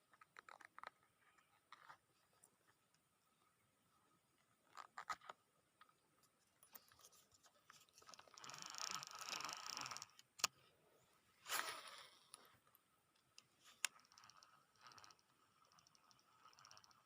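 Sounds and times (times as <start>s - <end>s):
fishing reel gears ticking: 8.0s - 10.2s, 13.8s - 17.0s
sharp reel clicks: 8.1s - 10.5s.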